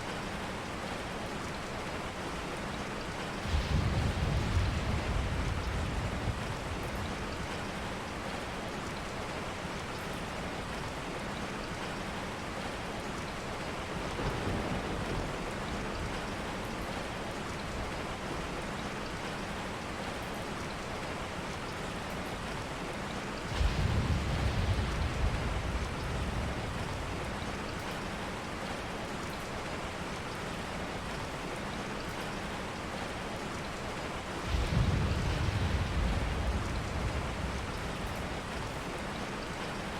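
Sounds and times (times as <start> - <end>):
rain falling: 0.0 - 39.9
low rumble of thunder: 3.4 - 8.1, 13.7 - 18.1, 23.5 - 28.9, 34.4 - 39.9.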